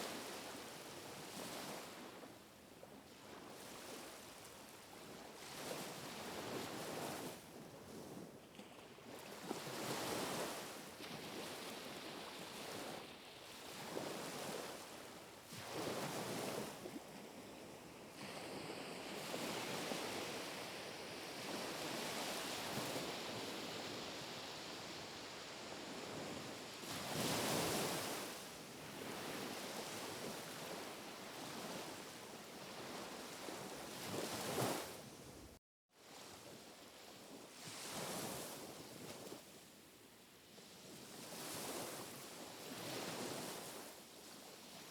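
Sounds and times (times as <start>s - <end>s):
small waves washing onto shore: 8.8s - 35.2s.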